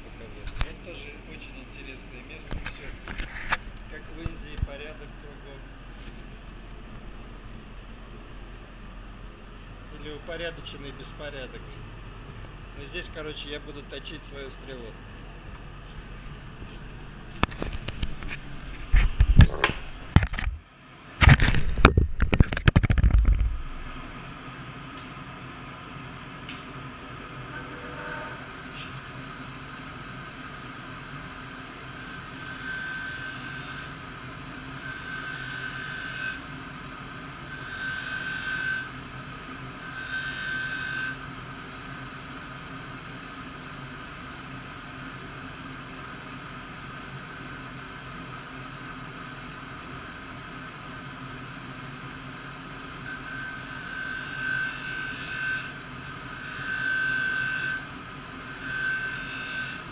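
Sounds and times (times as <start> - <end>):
steady hum: 0.0 - 40.4.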